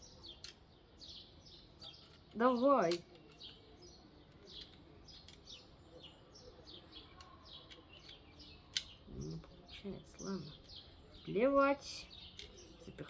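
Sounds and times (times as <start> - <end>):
faint bird chirping: 0.0 - 13.0
faint clicks: 7.1 - 9.0.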